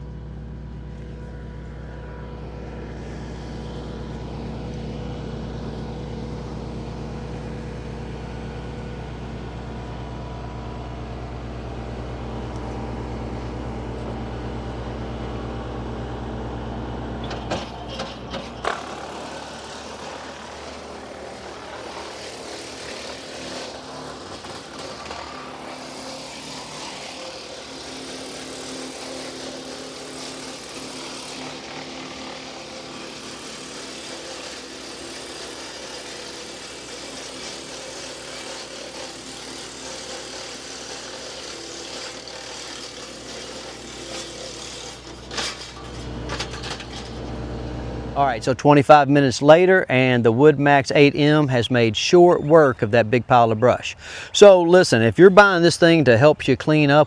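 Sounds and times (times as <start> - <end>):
wood chipper humming: 0.0 - 48.8, 53.9 - 54.5.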